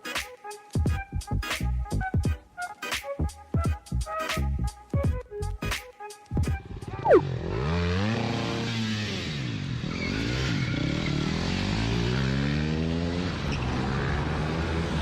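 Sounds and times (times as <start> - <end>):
motorcycle engine revving: 7.0 - 15.0.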